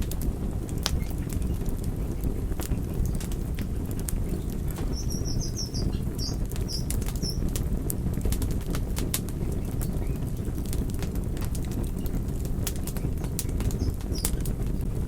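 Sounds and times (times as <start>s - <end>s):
wood fire crackling: 0.0s - 15.0s
high chirps: 4.9s - 7.4s.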